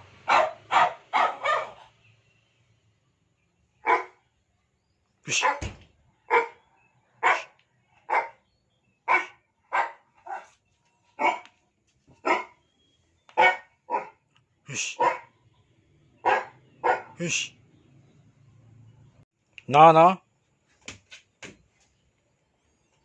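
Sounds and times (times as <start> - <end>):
dog barking: 0.2 - 2.0, 3.8 - 4.2, 5.3 - 8.4, 9.0 - 10.6, 11.2 - 11.6, 12.2 - 12.6, 13.3 - 14.2, 14.8 - 15.4, 16.2 - 17.3.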